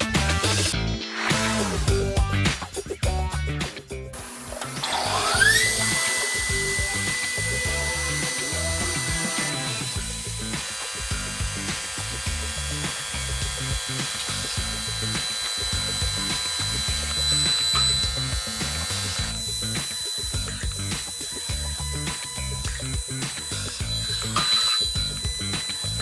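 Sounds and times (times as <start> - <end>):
milling machine spindle whine: 4.2 - 26.0.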